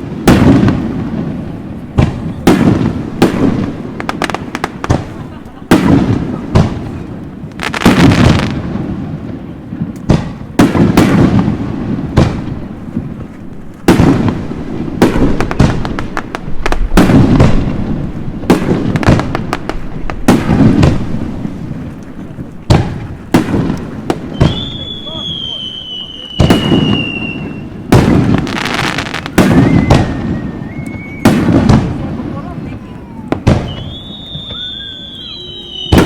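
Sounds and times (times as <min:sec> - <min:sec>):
fireworks bursting with sharp bangs: 0:00.0 - 0:36.0
fireworks crackling: 0:00.0 - 0:36.0.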